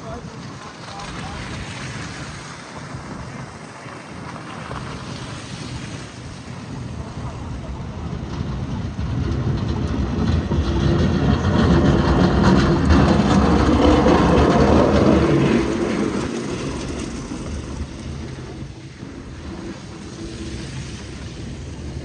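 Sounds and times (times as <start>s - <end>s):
large vehicle passing: 6.0s - 22.0s.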